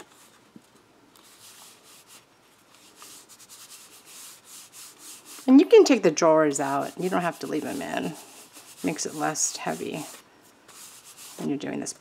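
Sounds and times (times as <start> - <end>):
hands rubbing paper: 1.1 - 5.5, 6.6 - 11.7.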